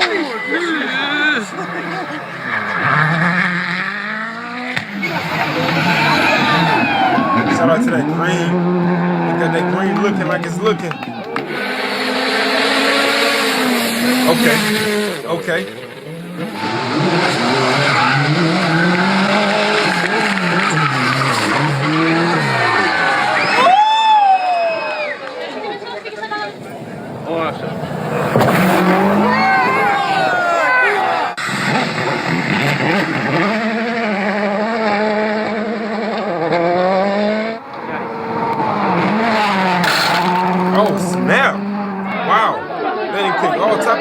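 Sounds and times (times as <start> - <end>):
rally car engine revving: 0.0 - 23.6, 26.2 - 44.0
tyres hissing on road: 11.4 - 15.3.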